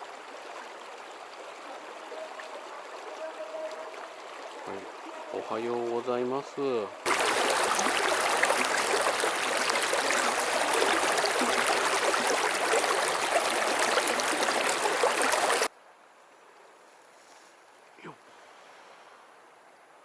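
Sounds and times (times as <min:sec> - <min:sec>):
stream water rushing: 0:00.0 - 0:15.7
faint hiss: 0:16.2 - 0:20.0.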